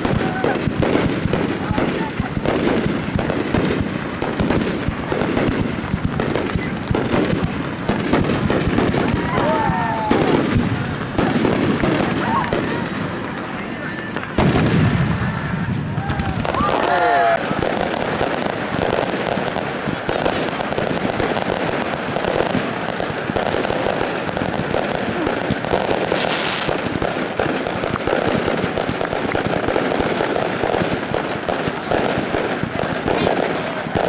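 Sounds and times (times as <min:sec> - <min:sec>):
fireworks bangs and crackles: 0:00.0 - 0:34.0
fireworks hissing burst: 0:25.0 - 0:27.0.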